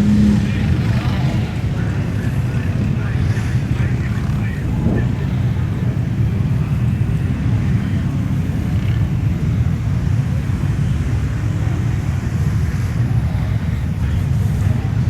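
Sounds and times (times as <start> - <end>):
truck engines rumbling: 0.0 - 15.0.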